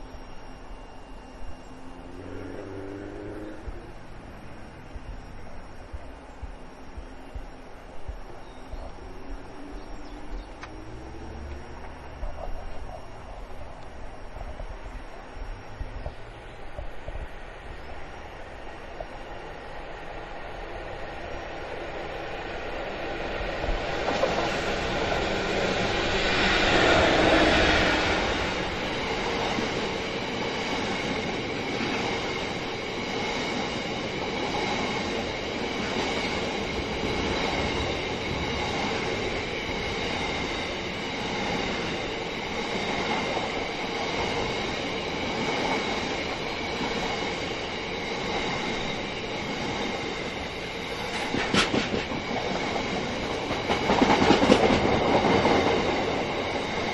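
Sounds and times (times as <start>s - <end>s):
faint high wheel ringing: 0.0s - 18.8s
diesel train passing: 0.0s - 56.9s
train wagons clattering over rail joints: 50.4s - 56.9s.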